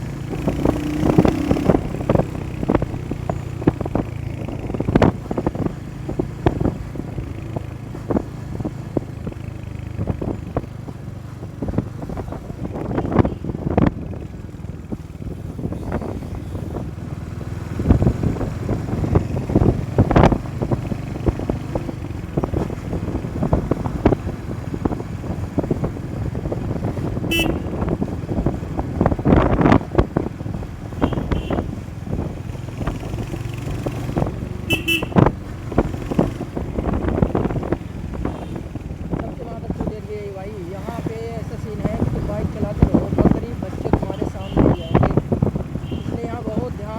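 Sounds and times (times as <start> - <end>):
motorcycle engine: 0.0 - 46.9
wind buffeting microphone: 0.0 - 46.9
short horn beeps: 27.3 - 27.7, 31.0 - 31.7, 34.7 - 35.2.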